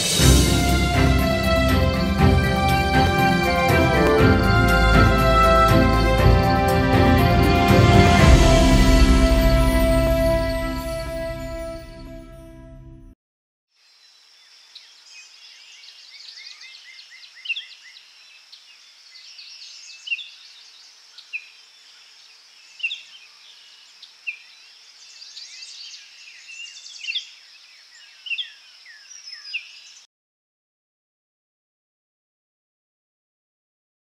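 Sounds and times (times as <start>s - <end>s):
songbirds chirping and whistling: 14.7s - 30.1s.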